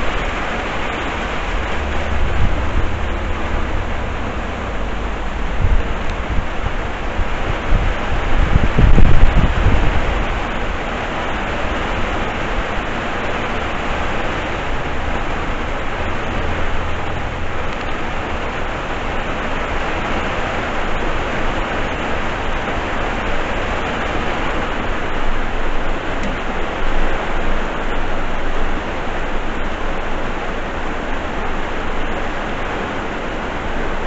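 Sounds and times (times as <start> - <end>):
low rumble: 0.0 - 21.6
heavy rain on flooded street: 0.0 - 34.0.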